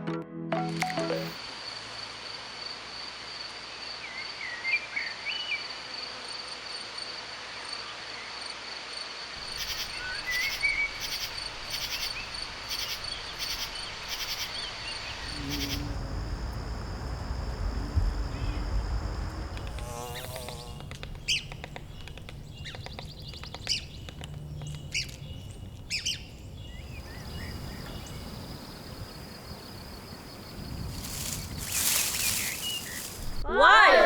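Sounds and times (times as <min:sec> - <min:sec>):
bird chirps: 0:09.4 - 0:16.0, 0:20.2 - 0:28.6
low hum: 0:09.4 - 0:26.5
insect pulsed chirp: 0:09.4 - 0:33.4
crickets trilling: 0:09.4 - 0:33.5.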